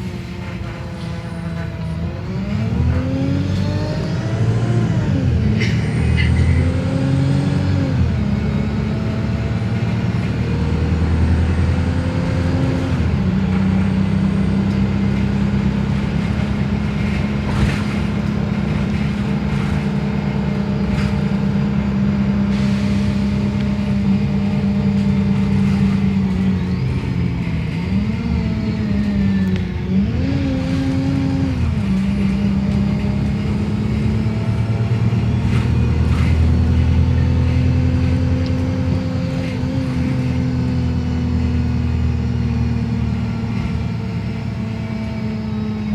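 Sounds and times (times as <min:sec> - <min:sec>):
bus engine running: 0:00.0 - 0:45.9
road noise: 0:00.0 - 0:45.9.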